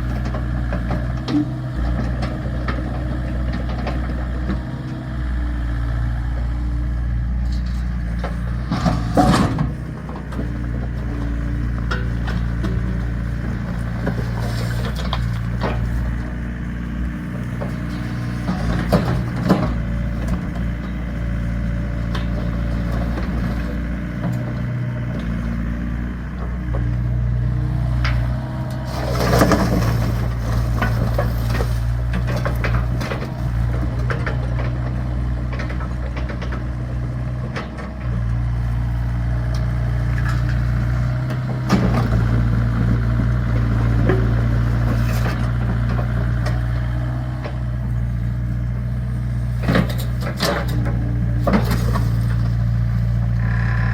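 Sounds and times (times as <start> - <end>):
excavator engine running: 0.0 - 53.9
crunching scrape: 28.9 - 33.0.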